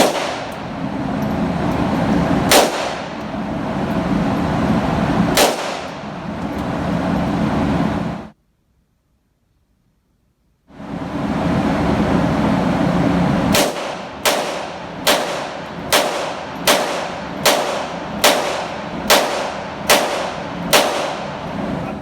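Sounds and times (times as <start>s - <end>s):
handgun shots: 0.0s - 0.6s, 2.5s - 3.2s, 5.4s - 6.0s, 13.5s - 21.4s.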